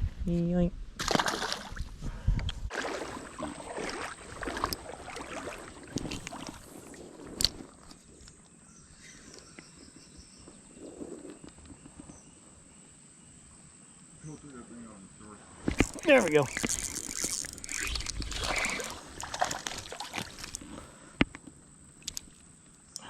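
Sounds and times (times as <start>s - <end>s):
creek water splashing: 1.0s - 1.8s, 2.7s - 7.8s, 15.6s - 21.0s.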